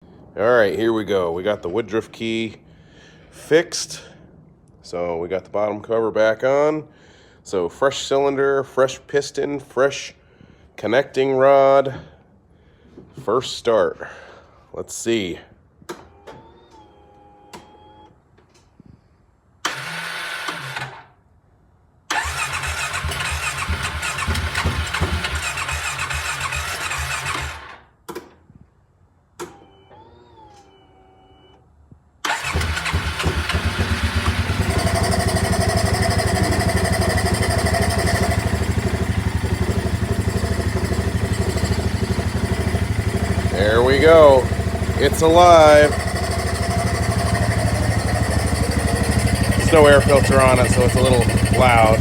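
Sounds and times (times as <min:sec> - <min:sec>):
electric starter cranking engine: 0:19.6 - 0:21.2, 0:22.1 - 0:27.9, 0:32.2 - 0:52.0
engine running loudly: 0:32.6 - 0:52.0.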